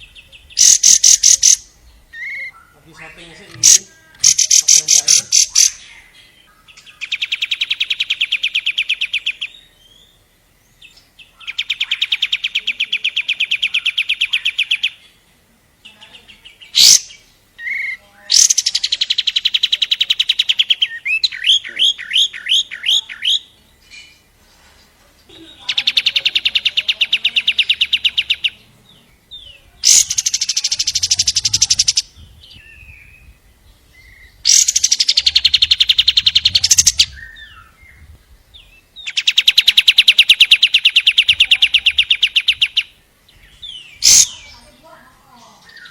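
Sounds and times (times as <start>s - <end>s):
bird rattling trilled chatter: 0.6s - 1.7s, 3.5s - 5.8s, 29.8s - 32.1s, 34.5s - 37.0s.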